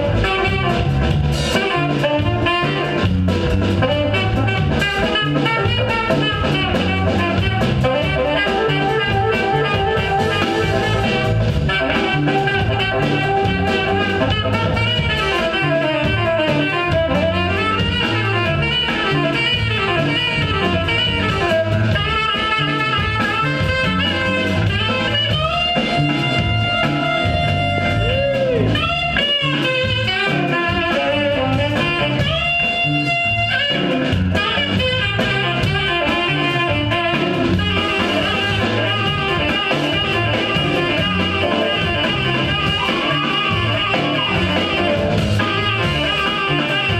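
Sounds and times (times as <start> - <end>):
funk band playing: 0.0 - 46.9
saxophone lead: 0.0 - 46.9
horns holding long high notes: 3.8 - 46.9.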